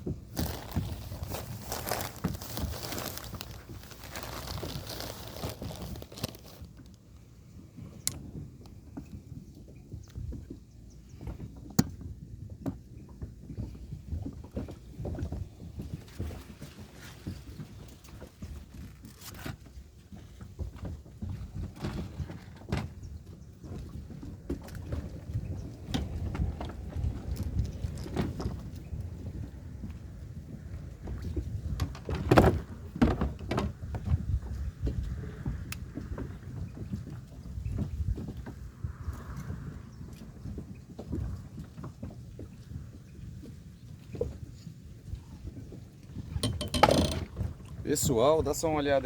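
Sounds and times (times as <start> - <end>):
knocks and clicks from kayak: 7.7 - 48.9
wind buffeting microphone: 20.5 - 49.0.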